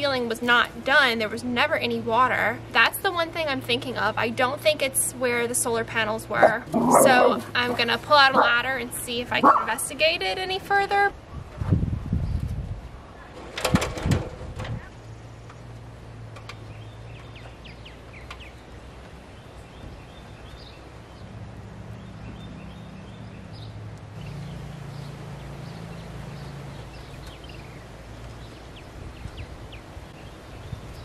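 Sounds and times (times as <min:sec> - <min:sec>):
low steady hum: 0:00.0 - 0:11.2
small birds chirping: 0:06.3 - 0:10.1, 0:16.4 - 0:31.0.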